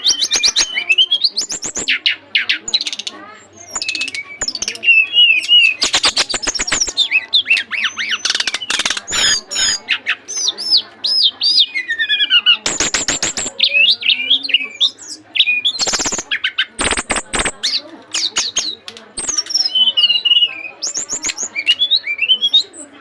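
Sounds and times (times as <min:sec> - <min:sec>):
songbird whistling: 0:00.0 - 0:23.0
bird ticking rattles: 0:01.4 - 0:02.0, 0:02.7 - 0:09.8, 0:12.6 - 0:13.8, 0:15.7 - 0:20.2.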